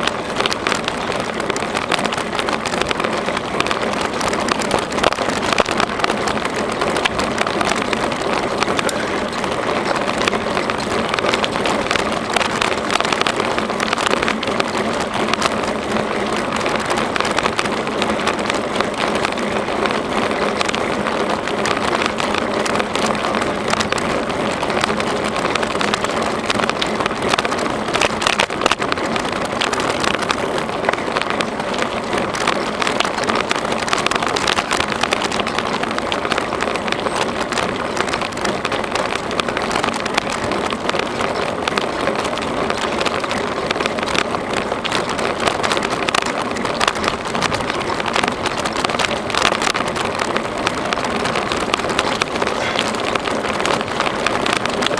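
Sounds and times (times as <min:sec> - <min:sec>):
bicycle tyres on rough trail: 0:00.0 - 0:54.9.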